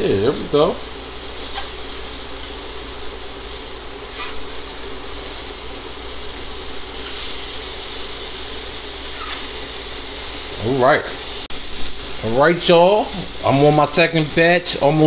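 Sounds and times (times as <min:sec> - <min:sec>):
scallops sizzling in a pan: 0:00.0 - 0:15.0.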